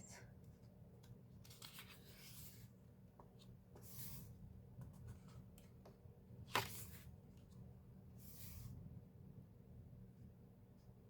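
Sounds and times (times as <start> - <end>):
pages rustling: 1.4 - 4.2, 6.5 - 7.1.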